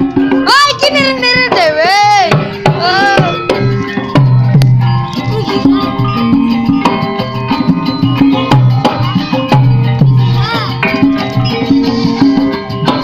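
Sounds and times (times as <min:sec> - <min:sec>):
band playing through pa: 0:00.0 - 0:13.0
hand drum strokes: 0:00.0 - 0:13.0.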